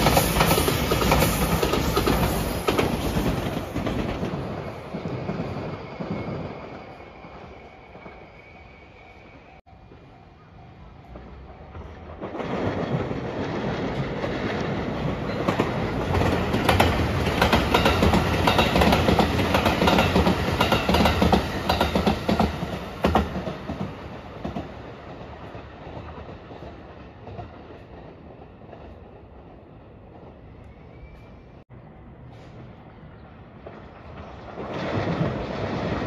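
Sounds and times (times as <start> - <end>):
train wheels clattering over rail joints: 11.1 - 28.1.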